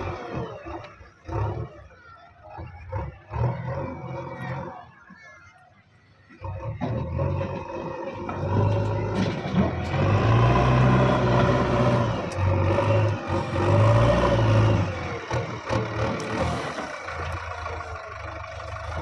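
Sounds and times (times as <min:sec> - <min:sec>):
diesel engine revving: 0:00.0 - 0:05.1, 0:06.2 - 0:19.0
metal clanks: 0:08.2 - 0:13.2.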